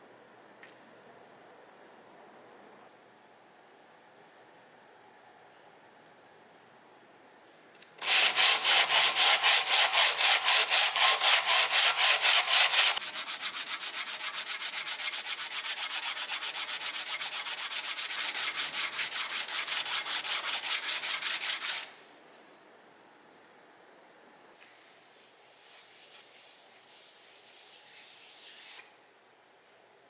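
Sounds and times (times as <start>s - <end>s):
sandpaper rubbing on wood: 8.0s - 21.9s, 25.6s - 28.8s.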